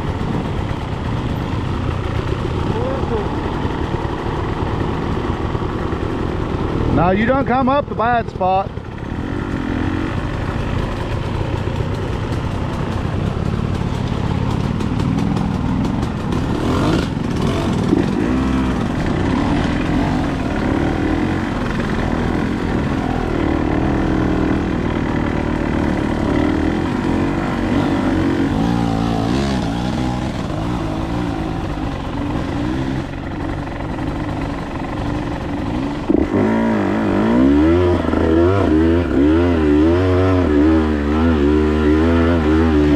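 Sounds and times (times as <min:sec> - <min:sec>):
dirt bike engine revving: 0:08.8 - 0:13.6, 0:14.6 - 0:42.9
deeper engine revving: 0:14.9 - 0:42.9.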